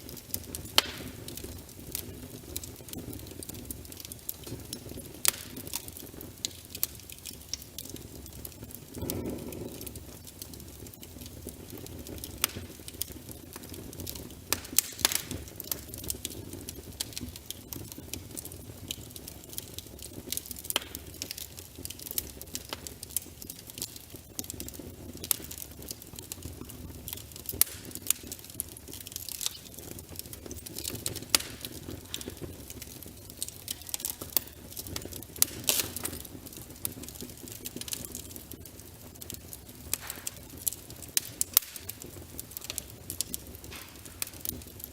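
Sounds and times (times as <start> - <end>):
fire crackling and popping: 0.0 - 44.9
low rumble of flames: 0.0 - 44.9.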